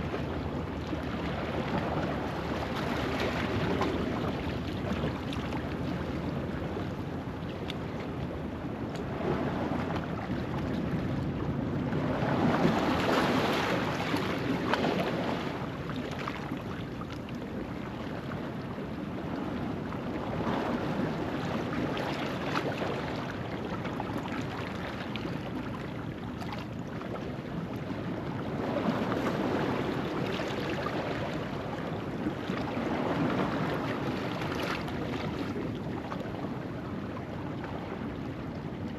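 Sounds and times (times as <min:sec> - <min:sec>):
ocean waves on rocky shore: 0:10.8 - 0:16.4.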